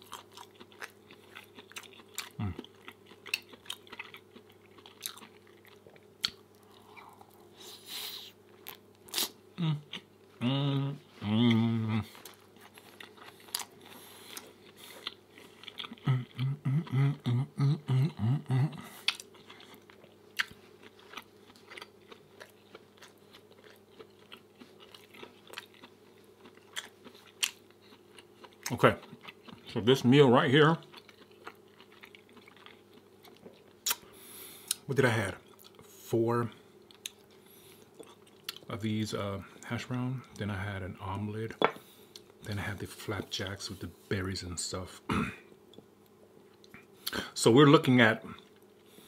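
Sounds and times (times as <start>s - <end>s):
close-miked chewing: 0.0s - 7.7s, 11.4s - 17.7s, 18.7s - 34.0s.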